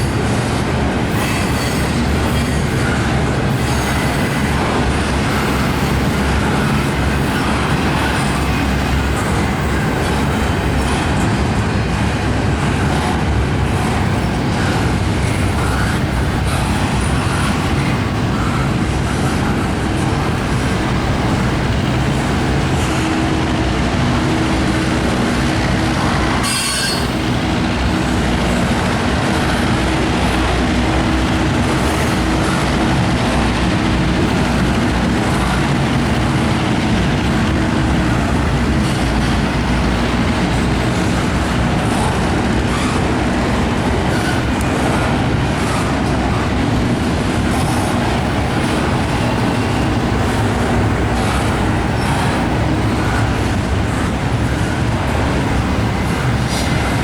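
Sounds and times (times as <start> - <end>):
train wheels rumbling on rails: 0.0 - 57.0
wheel squeal: 26.4 - 27.2.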